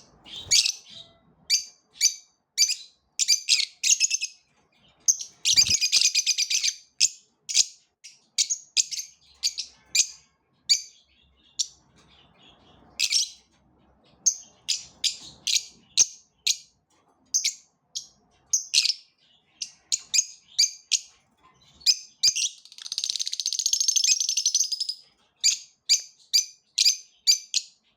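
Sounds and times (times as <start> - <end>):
small birds chirping: 0.0 - 27.9
rapid chattering bird trill: 5.1 - 6.7, 22.2 - 25.0.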